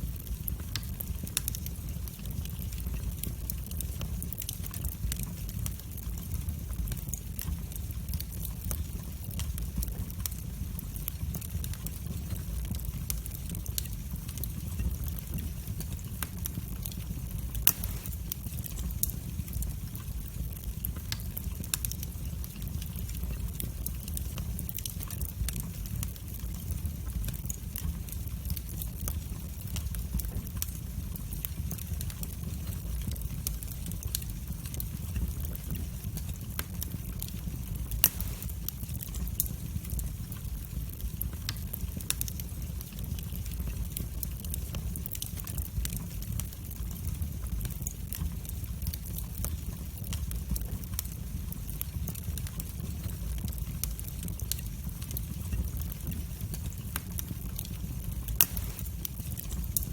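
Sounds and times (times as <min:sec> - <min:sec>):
fire crackling in fireplace: 0:00.0 - 0:59.9
loud pop of fire: 0:17.6 - 0:18.4, 0:38.0 - 0:38.8, 0:58.4 - 0:59.8.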